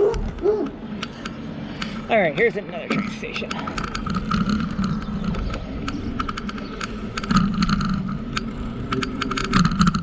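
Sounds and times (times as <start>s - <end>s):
bike rattling clicks: 0.0s - 2.1s, 3.3s - 10.0s
bicycle tyres rolling: 3.3s - 10.0s.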